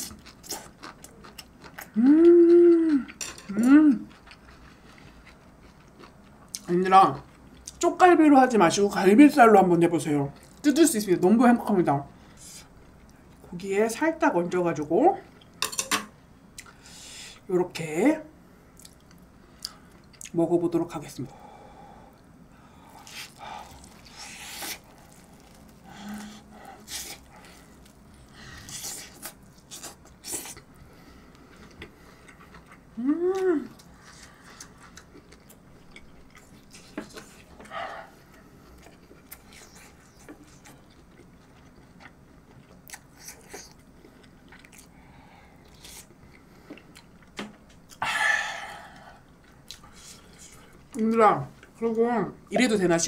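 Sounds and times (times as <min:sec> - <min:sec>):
person chewing with mouth smacks: 0:00.0 - 0:07.8, 0:23.0 - 0:30.8, 0:31.4 - 0:44.9, 0:49.3 - 0:50.7
person humming: 0:01.9 - 0:04.1, 0:33.0 - 0:33.8
person exclaiming ahh: 0:02.0 - 0:04.0, 0:33.0 - 0:33.7.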